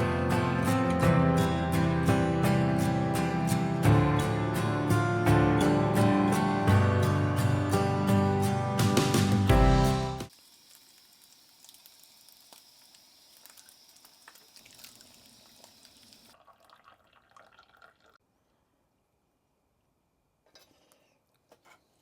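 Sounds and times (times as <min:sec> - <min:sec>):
light hiss: 0:10.3 - 0:16.3
faint water dripping: 0:10.4 - 0:18.2.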